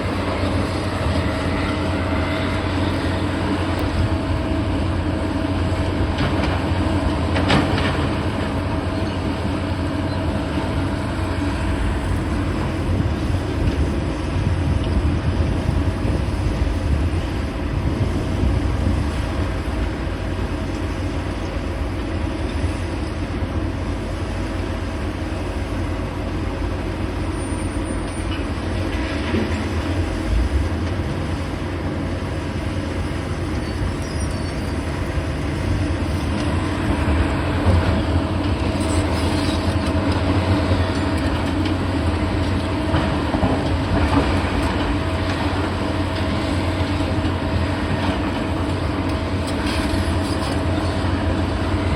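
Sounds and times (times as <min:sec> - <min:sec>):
diesel engine rumble: 0:00.0 - 0:51.9
machinery scraping and clattering: 0:36.2 - 0:51.1.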